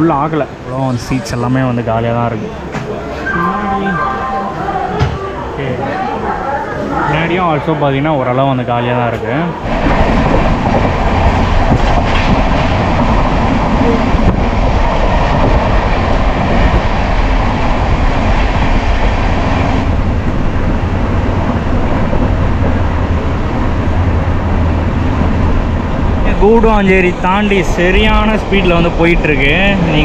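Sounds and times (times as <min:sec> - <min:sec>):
wheel-on-rail noise: 0:08.3 - 0:30.0.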